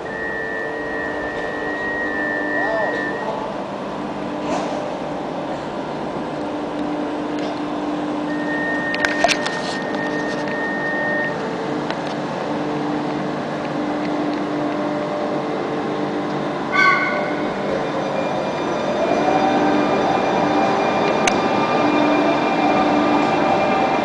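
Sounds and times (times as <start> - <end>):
thin high whine: 0.0 - 3.6, 8.0 - 11.9
train humming: 0.0 - 24.0.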